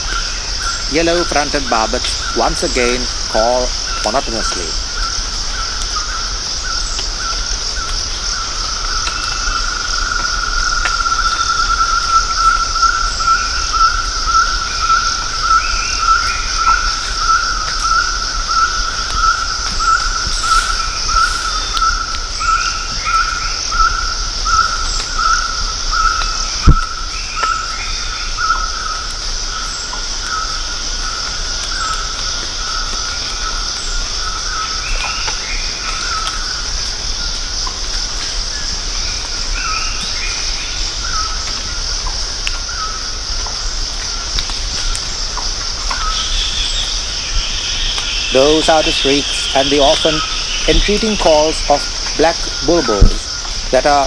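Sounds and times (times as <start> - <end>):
insects hissing: 0.0 - 54.0
barbet calling: 8.4 - 29.1, 45.9 - 54.0.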